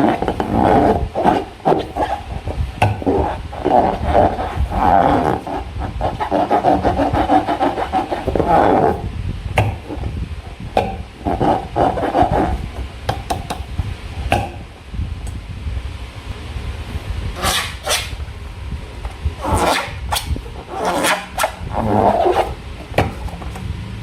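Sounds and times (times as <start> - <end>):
rubber balloon squeaking: 0.0 - 10.2, 10.8 - 12.9, 17.4 - 18.2, 19.4 - 23.3.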